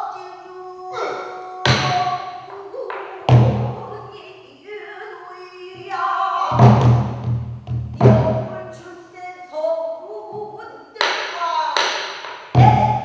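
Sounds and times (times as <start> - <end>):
person singing long bending notes: 0.0 - 4.3.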